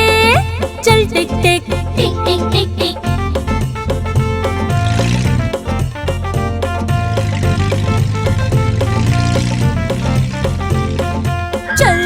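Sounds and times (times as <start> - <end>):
instrumental children's rhyme music: 0.0 - 12.0.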